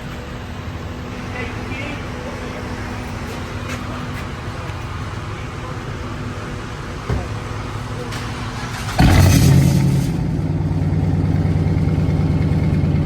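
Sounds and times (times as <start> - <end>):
car engine starting and idling: 0.0 - 13.0.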